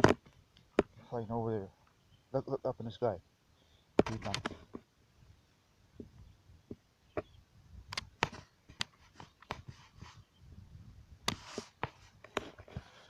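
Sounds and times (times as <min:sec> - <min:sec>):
small clicks and knocks: 0:04.0 - 0:04.9.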